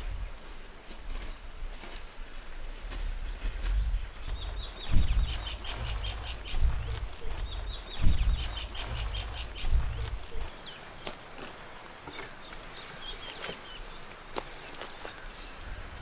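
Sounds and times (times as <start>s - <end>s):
songbird chirping: 2.3s - 16.0s
low rumble with thumps: 2.8s - 10.6s.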